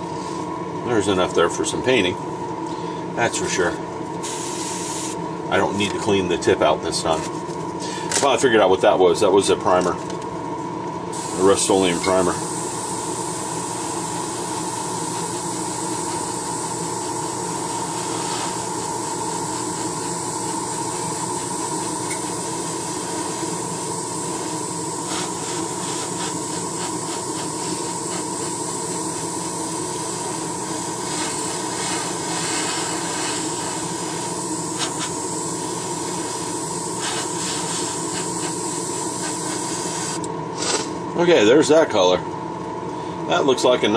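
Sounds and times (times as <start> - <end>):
exhaust fan running: 0.0 - 43.9
sharp hisses: 12.3 - 40.3.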